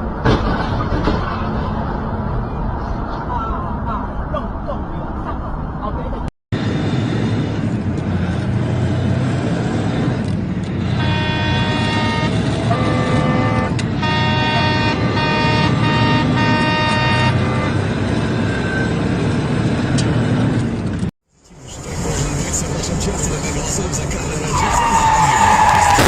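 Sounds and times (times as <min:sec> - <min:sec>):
road and engine noise: 0:00.0 - 0:26.0
car horn honking: 0:11.0 - 0:17.8.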